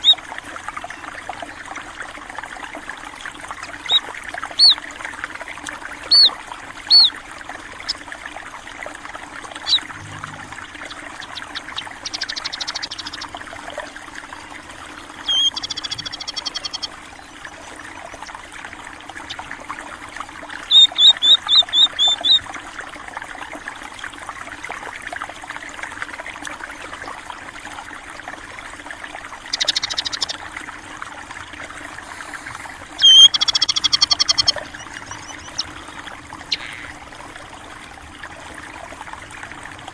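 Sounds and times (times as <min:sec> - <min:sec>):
water trickling: 0:00.0 - 0:39.9
small birds chirping and trilling: 0:03.8 - 0:04.8, 0:06.1 - 0:07.2, 0:09.6 - 0:13.4, 0:15.2 - 0:16.9, 0:20.6 - 0:22.5, 0:29.5 - 0:30.4, 0:33.0 - 0:36.9.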